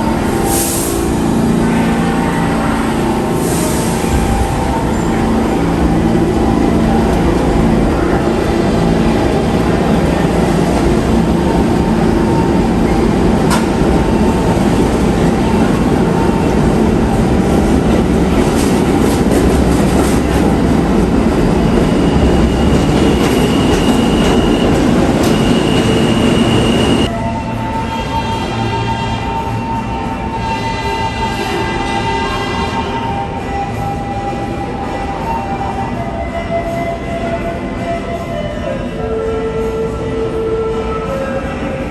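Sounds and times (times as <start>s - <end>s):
subway train rail noise: 0.0s - 41.9s
high-pitched wheel squeal: 21.7s - 27.1s.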